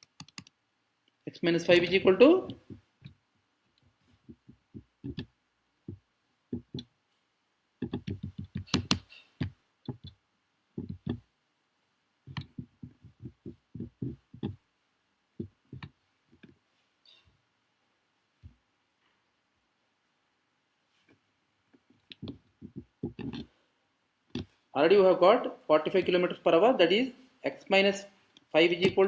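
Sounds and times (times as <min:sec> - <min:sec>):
keyboard typing: 0:00.0 - 0:00.6, 0:04.2 - 0:05.3, 0:06.5 - 0:06.9, 0:07.8 - 0:10.2, 0:10.8 - 0:11.2, 0:12.3 - 0:14.6, 0:22.1 - 0:23.5.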